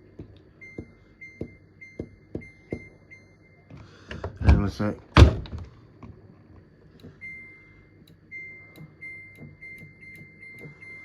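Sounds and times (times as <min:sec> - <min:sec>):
washing machine panel beeps: 0:00.6 - 0:03.6, 0:07.0 - 0:11.0.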